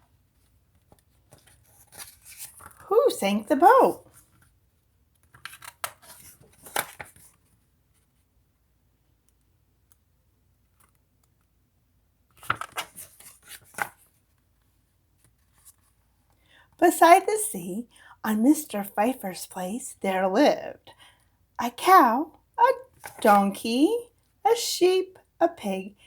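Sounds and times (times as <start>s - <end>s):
book pages rustling: 0.2s - 8.3s, 12.3s - 16.4s, 22.8s - 23.4s.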